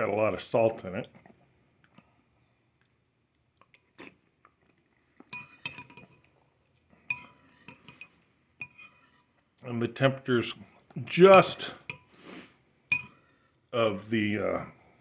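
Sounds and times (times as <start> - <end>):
spoon clinking against bowl: 5.3 - 6.3, 7.0 - 9.3, 11.3 - 12.1, 12.9 - 14.1.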